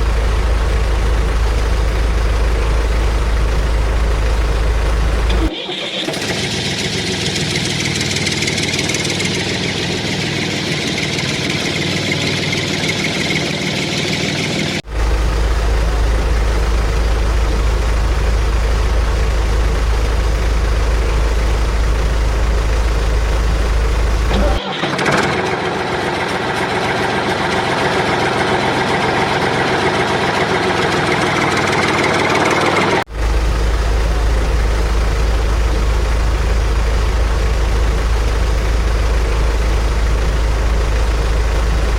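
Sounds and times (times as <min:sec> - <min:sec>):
deep low hum: 0:00.0 - 0:05.5, 0:06.2 - 0:24.6, 0:33.0 - 0:41.9
construction machinery engines running: 0:00.0 - 0:41.9.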